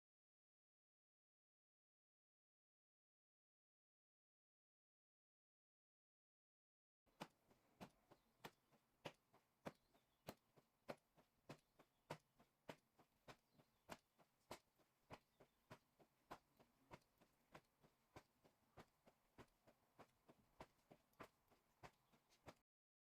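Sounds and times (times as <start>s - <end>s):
faint rhythmic slapping on body: 7.1s - 22.6s.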